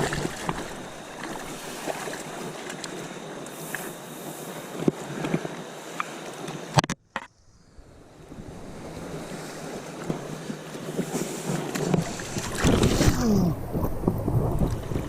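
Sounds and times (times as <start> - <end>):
river water rushing: 0.0 - 2.4, 12.0 - 14.8
wind on microphone: 7.3 - 15.0.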